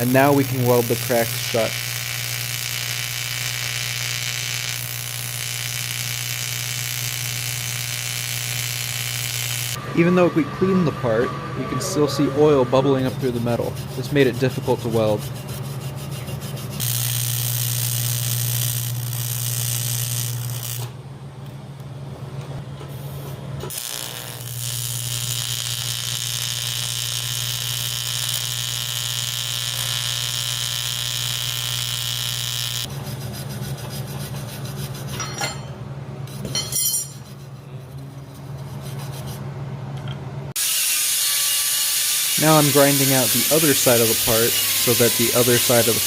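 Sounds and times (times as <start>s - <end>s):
welding arc buzzing: 0.0s - 10.2s, 12.8s - 21.0s, 23.0s - 33.0s, 40.5s - 46.0s.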